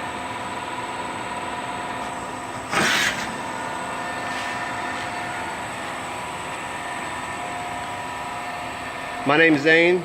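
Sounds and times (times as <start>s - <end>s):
plasma cutter machine hum: 0.0s - 10.0s.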